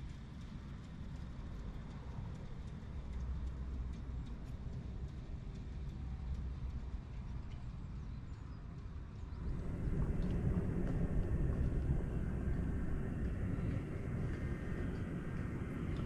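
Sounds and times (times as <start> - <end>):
train rumbling on track: 8.7 - 16.0.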